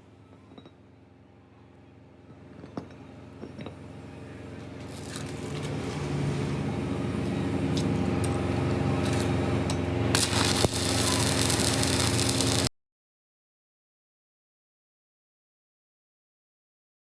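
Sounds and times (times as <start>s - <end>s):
workshop machinery humming: 0.0s - 12.7s.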